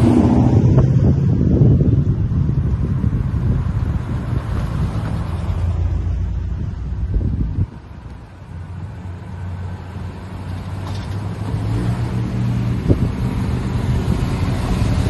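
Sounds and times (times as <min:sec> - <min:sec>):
car engine approaching: 0:00.0 - 0:15.0.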